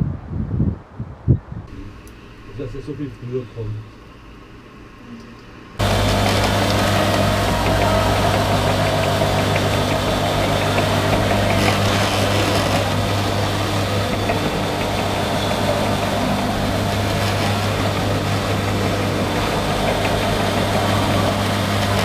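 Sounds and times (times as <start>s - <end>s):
vehicle engine droning: 5.8s - 22.0s.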